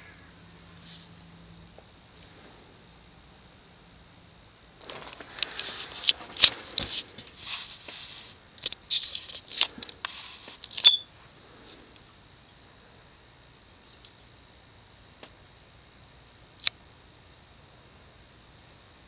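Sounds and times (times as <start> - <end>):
rustling and handling noise: 0.6 - 2.8, 4.7 - 12.6.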